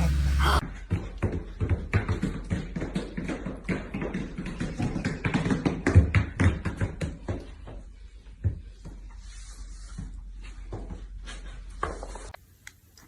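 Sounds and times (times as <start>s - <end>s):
rapid irregular taps and knocks: 0.8s - 9.0s.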